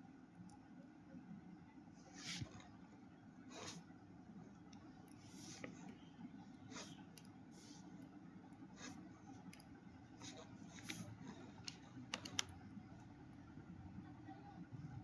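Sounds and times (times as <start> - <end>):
low room hum: 0.0 - 15.0
pen writing strokes and taps: 2.2 - 2.7, 5.1 - 6.0, 8.8 - 12.5.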